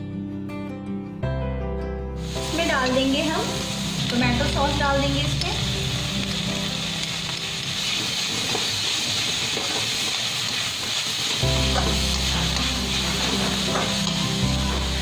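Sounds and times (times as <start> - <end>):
background music with bass: 0.0 - 7.4, 11.4 - 15.0
vegetables sizzling in oil: 2.2 - 15.0.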